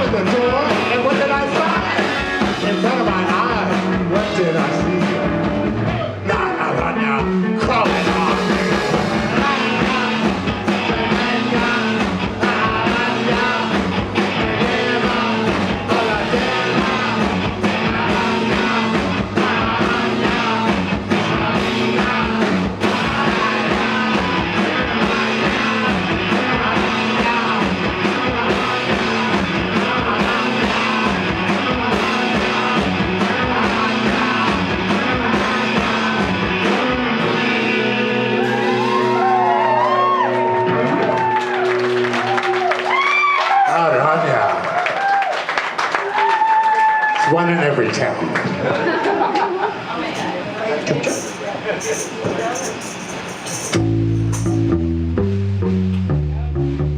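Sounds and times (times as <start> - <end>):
person singing: 0.0 - 41.2
rock band playing live: 0.0 - 44.0, 51.1 - 56.9.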